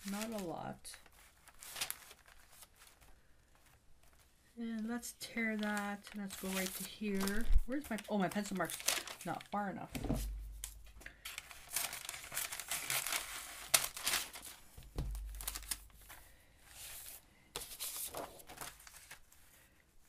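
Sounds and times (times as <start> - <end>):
paper rustling and tearing: 0.0 - 20.0
dull thumps on table: 10.0 - 10.8, 14.8 - 15.4.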